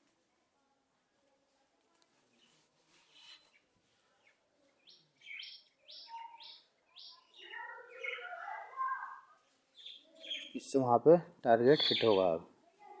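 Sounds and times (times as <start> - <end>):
songbird chirping: 2.0 - 12.6.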